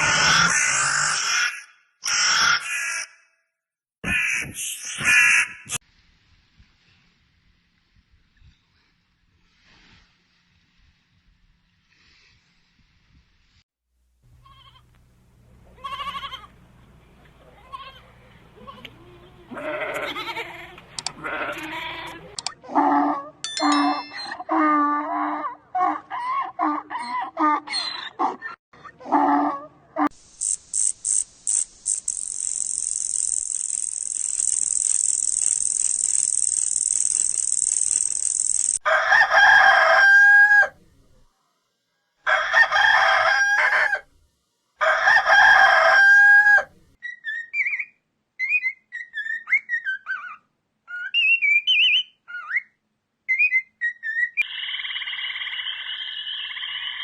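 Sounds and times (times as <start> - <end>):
high-pitched hiss: 30.2 - 38.8
rooster crowing: 38.8 - 40.8, 42.2 - 44.1, 44.8 - 46.7
bird chirps: 47.0 - 57.0.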